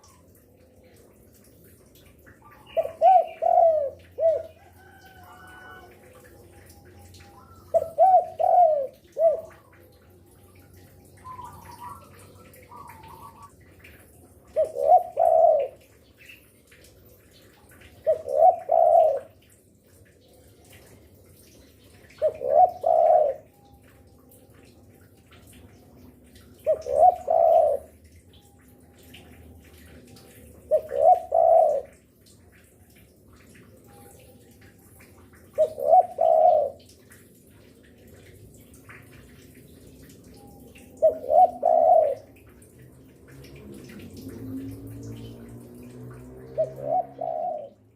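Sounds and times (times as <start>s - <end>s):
dove cooing: 2.4s - 10.0s, 10.6s - 13.5s, 14.5s - 15.8s, 18.0s - 19.4s, 22.1s - 23.6s, 26.6s - 28.0s, 30.7s - 32.0s, 35.5s - 36.9s, 41.0s - 42.7s, 46.4s - 47.9s
softer higher bird calls: 11.1s - 13.6s.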